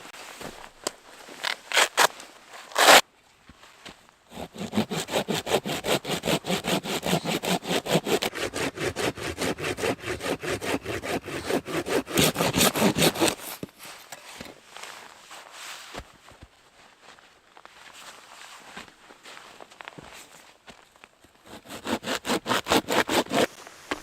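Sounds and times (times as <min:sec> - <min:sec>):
hand saw cutting wood: 0:01.4 - 0:02.1, 0:02.7 - 0:03.0, 0:04.3 - 0:13.8, 0:21.4 - 0:24.0.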